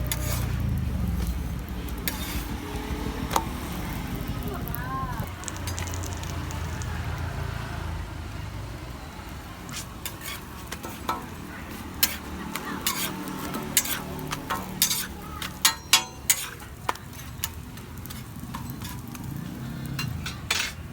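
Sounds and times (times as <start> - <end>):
metal spatula scraping griddle: 0.0 - 4.0, 4.6 - 7.2, 9.5 - 20.9
low steady rumble: 0.3 - 7.5.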